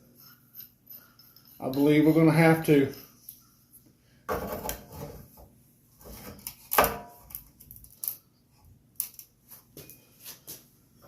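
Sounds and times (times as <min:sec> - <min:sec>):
tools knocking and scraping on workbench: 0:04.3 - 0:07.0.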